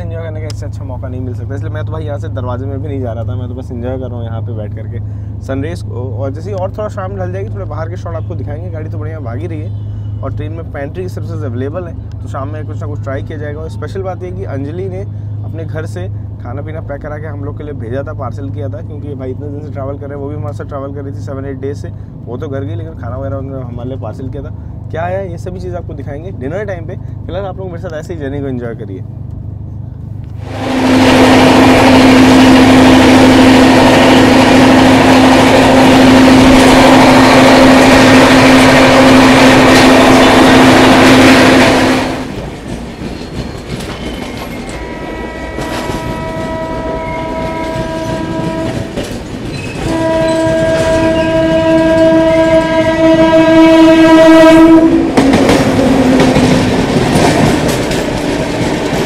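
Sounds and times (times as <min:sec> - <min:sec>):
trains rushing and rattling: 0:00.0 - 0:59.0
locomotive horn blasts: 0:30.4 - 0:42.3, 0:44.7 - 0:49.1, 0:49.8 - 0:56.2
train wheel clatter: 0:30.8 - 0:52.9, 0:55.0 - 0:59.0.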